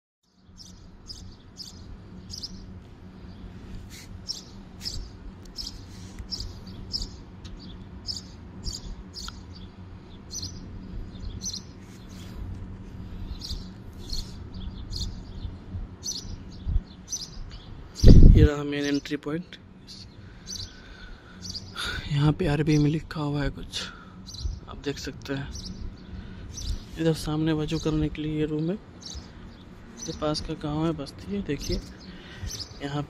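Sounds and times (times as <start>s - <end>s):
small birds chirping: 0.2s - 33.0s
low steady rumble: 0.3s - 33.0s.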